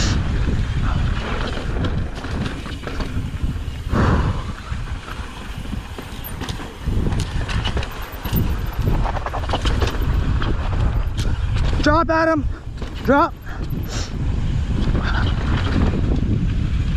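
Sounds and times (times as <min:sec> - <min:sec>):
bike rattling: 0:00.0 - 0:16.9
wind on microphone: 0:00.0 - 0:16.9
bike tyres crunching over dirt: 0:00.3 - 0:16.9.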